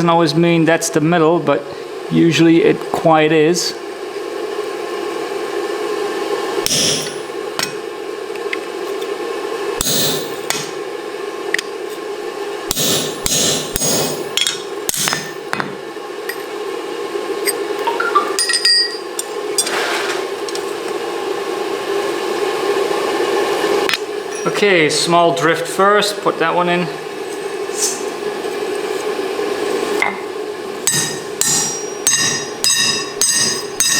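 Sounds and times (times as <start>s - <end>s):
steady hum: 6.4s - 8.3s, 9.6s - 19.6s, 23.7s - 33.9s
hammer striking punch into hot steel: 6.6s - 7.8s, 9.8s - 10.8s, 12.7s - 15.7s, 30.9s - 33.9s.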